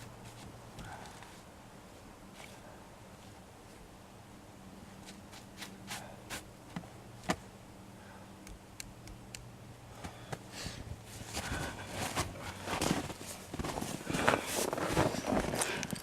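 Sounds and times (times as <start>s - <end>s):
crunches and knocks in snow: 11.1s - 16.0s.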